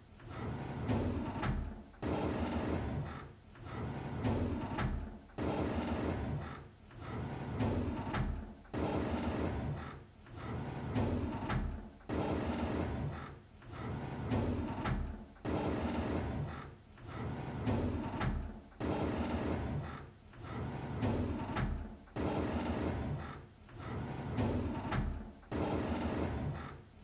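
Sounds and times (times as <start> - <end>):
drawer sliding open: 10.4 - 13.1, 13.8 - 15.2, 17.1 - 19.9, 20.5 - 26.8.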